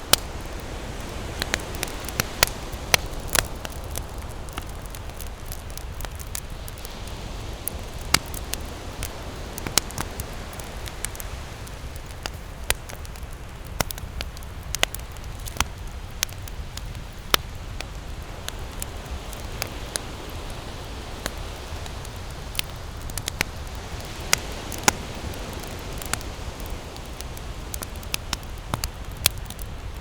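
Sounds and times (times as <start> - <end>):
campfire crackling: 0.0 - 30.0.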